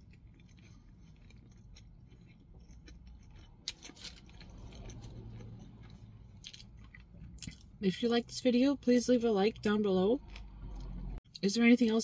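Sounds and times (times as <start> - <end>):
person chewing: 0.0 - 7.8.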